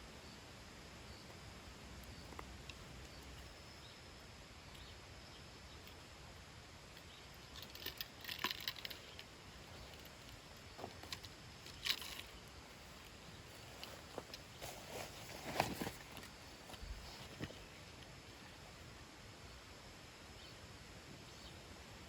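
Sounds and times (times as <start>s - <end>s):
rustles: 6.8s - 22.0s.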